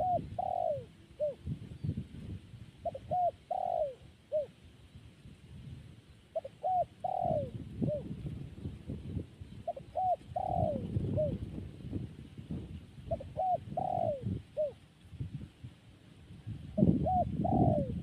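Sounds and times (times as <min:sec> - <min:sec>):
dove cooing: 0:00.0 - 0:01.9, 0:02.8 - 0:04.6, 0:06.3 - 0:08.4, 0:09.5 - 0:11.6, 0:13.1 - 0:14.8, 0:16.7 - 0:18.0.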